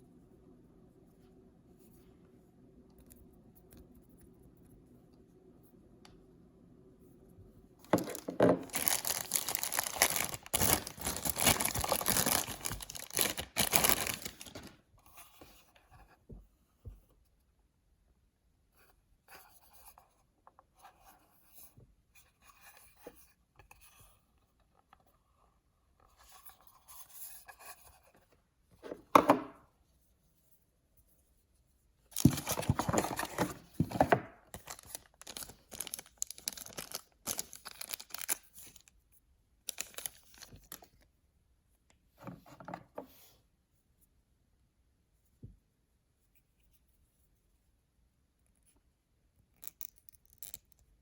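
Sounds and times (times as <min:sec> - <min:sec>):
faint low hum: 0:00.0 - 0:38.0
packaging tearing: 0:07.9 - 0:14.7, 0:32.2 - 0:33.6, 0:34.6 - 0:38.5
packaging rustling and clicking: 0:07.9 - 0:14.8, 0:32.2 - 0:38.8.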